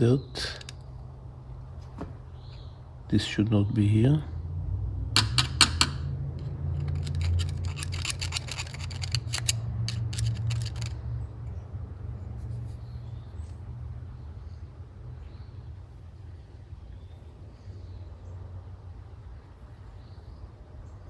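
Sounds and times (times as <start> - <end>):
small metal parts clicking: 0.4 - 0.8, 5.2 - 11.1.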